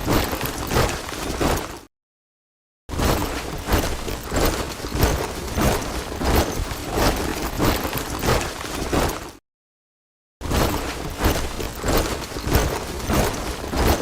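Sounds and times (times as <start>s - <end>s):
soldiers marching in step: 3.2s - 9.4s, 10.6s - 14.0s.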